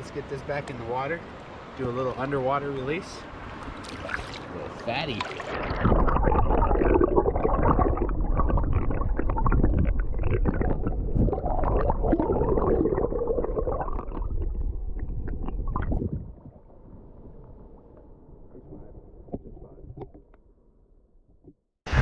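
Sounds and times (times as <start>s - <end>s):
muffled underwater river gurgling: 4.0s - 20.2s.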